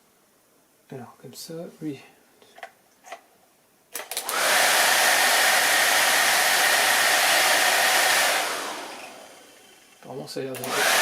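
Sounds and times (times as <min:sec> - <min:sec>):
blower fan whooshing and whining: 0:04.0 - 0:10.0, 0:10.6 - 0:11.0.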